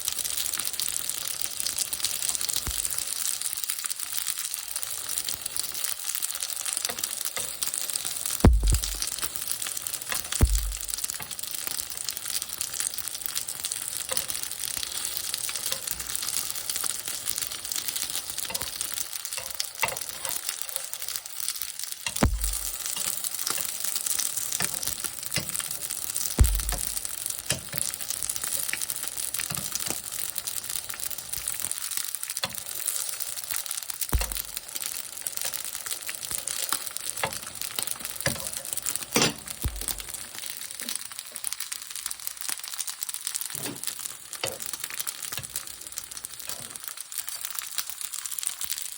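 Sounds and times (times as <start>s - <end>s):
dumplings sizzling in a pan: 0.0s - 48.9s
low thumps: 8.5s - 9.2s, 10.4s - 11.0s, 22.2s - 22.9s, 26.4s - 27.1s, 34.2s - 34.6s, 39.7s - 40.2s.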